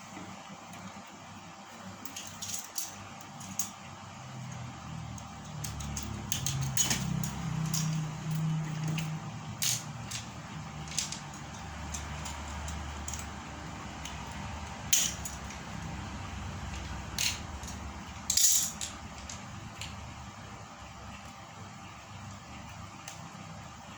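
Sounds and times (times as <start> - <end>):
metal parts clinking: 2.1 - 3.7, 5.6 - 13.3, 14.9 - 15.6, 16.7 - 19.4.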